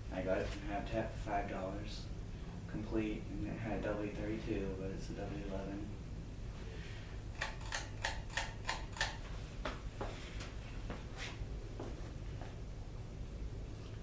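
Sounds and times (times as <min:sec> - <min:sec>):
ceiling fan motor humming: 0:00.0 - 0:14.0
sharp clicks of fan: 0:07.2 - 0:10.6.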